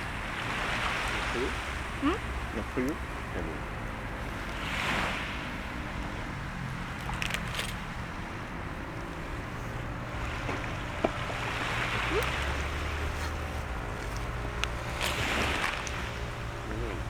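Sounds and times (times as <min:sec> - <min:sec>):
sea waves washing ashore: 0:00.0 - 0:17.0.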